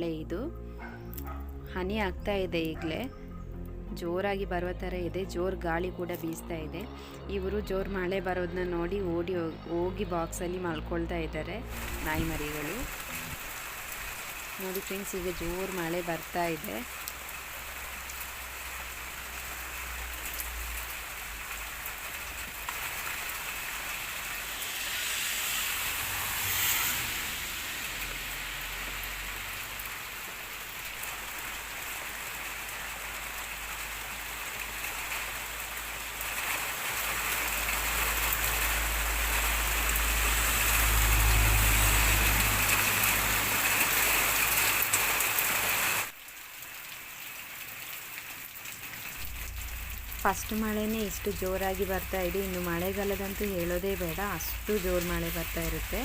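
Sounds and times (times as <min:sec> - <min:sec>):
heavy rain pouring: 0:09.6 - 0:56.0
low rumble: 0:24.1 - 0:29.0, 0:49.1 - 0:56.0.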